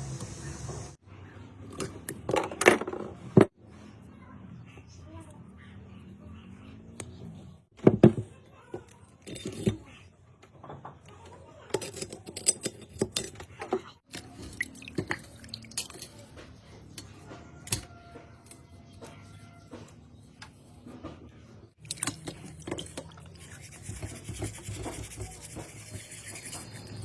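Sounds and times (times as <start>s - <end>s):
metal tools clinking and knocking: 11.7s - 16.3s.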